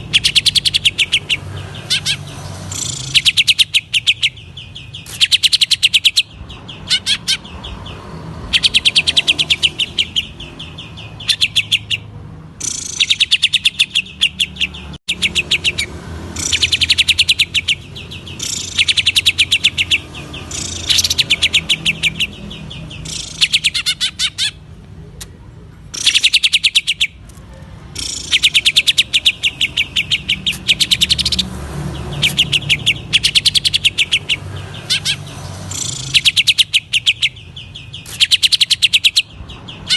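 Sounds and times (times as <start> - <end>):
bird singing rapid high notes: 0.0 - 24.8, 25.9 - 39.9.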